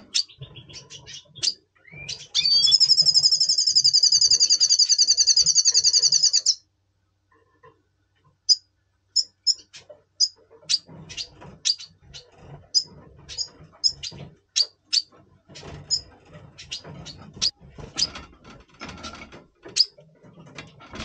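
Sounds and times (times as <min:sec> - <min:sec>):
bird sharp high chirps: 0:00.0 - 0:06.6, 0:09.2 - 0:11.9
bird high trill: 0:01.9 - 0:06.6.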